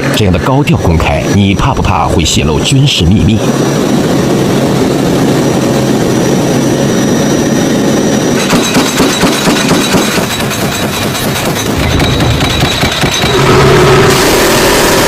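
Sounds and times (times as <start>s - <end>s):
turboprop engines droning: 0.0s - 15.0s
metallic clattering knocks: 8.4s - 13.5s.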